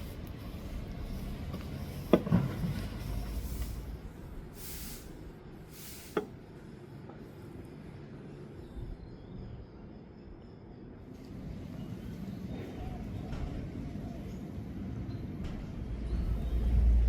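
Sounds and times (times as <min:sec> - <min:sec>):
short hisses: 0:04.6 - 0:06.2.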